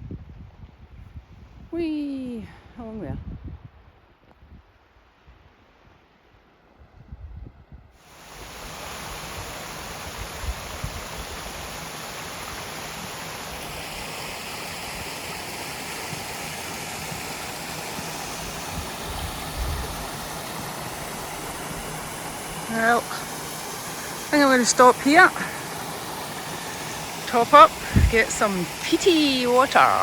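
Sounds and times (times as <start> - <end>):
wind rumble on microphone: 0.0 - 5.5, 6.8 - 8.0, 18.7 - 20.1, 27.8 - 28.3
stream water rushing: 8.0 - 30.0.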